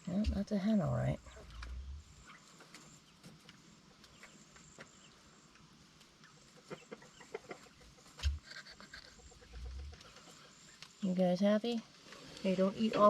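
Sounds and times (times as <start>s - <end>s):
quail clucking calls: 0.0s - 3.6s, 6.2s - 10.8s.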